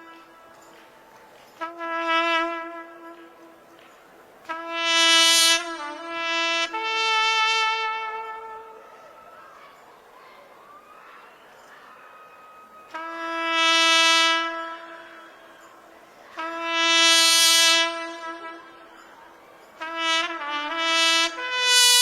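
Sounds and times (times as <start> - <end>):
solo trumpet playing: 0.0 - 0.8, 1.6 - 3.8, 4.4 - 8.9, 12.9 - 22.0.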